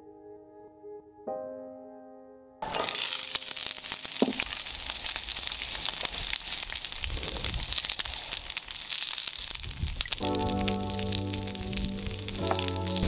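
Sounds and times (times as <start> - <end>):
onions sizzling in a frying pan: 2.7 - 13.0.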